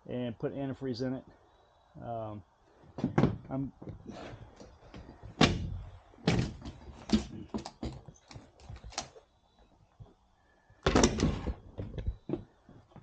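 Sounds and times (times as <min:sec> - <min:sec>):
sharp knocks and clunks: 0:03.0 - 0:08.5, 0:10.8 - 0:13.0.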